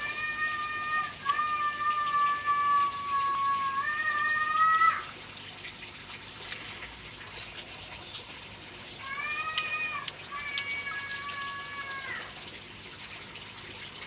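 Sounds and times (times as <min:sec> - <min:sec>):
fish splashing and slurping: 0:05.0 - 0:14.0.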